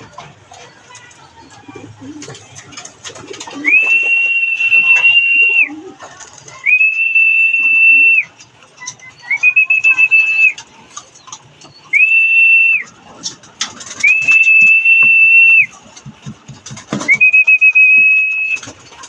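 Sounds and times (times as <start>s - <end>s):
whistle blasts: 3.7s - 5.7s, 6.6s - 8.3s, 9.3s - 10.6s, 11.9s - 12.9s, 14.0s - 15.7s, 17.1s - 18.7s.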